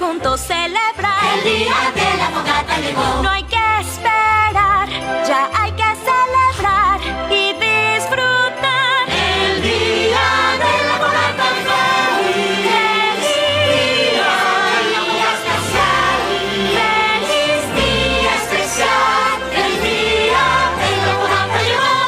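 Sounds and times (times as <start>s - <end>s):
choir singing with vibrato: 1.0s - 3.4s, 9.0s - 22.0s.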